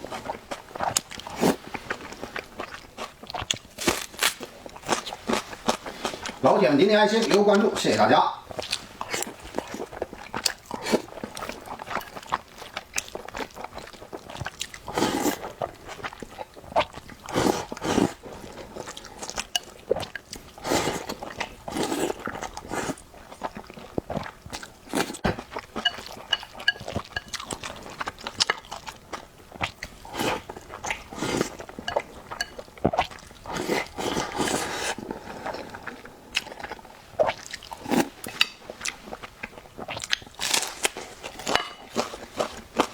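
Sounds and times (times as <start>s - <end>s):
person chewing and biting food: 0.2s - 6.4s.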